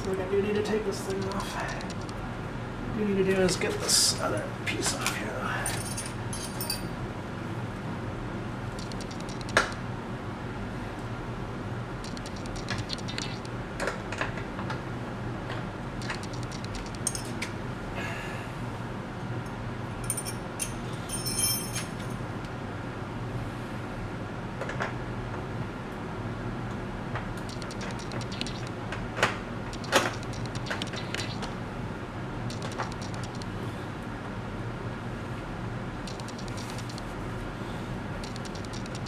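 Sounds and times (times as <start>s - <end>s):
steady low hum: 0.0s - 24.6s, 25.6s - 39.0s
metallic jingle: 5.7s - 6.9s, 20.0s - 22.1s
hand tools clinking on metal: 20.0s - 22.1s.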